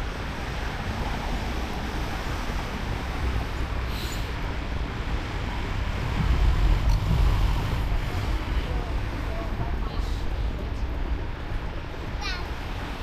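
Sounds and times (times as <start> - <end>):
road rumble: 0.0 - 13.0
wind on microphone: 0.0 - 13.0
brief hiss: 3.9 - 4.3.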